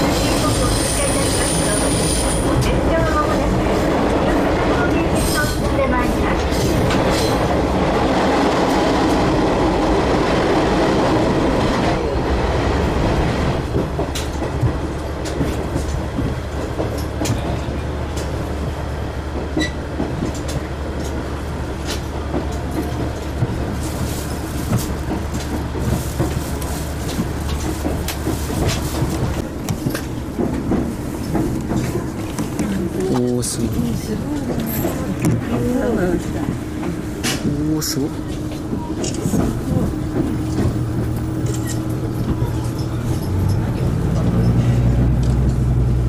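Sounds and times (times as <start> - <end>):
train running rumble: 0.0 - 46.0
diesel engine drone: 31.3 - 46.0.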